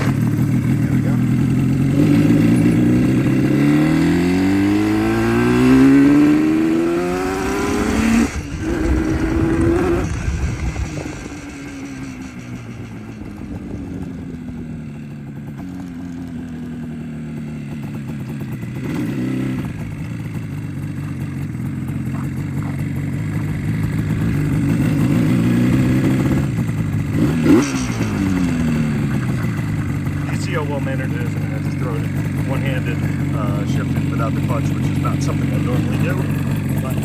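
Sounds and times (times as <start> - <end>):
two-stroke motorcycle engine accelerating: 0.0 - 37.0.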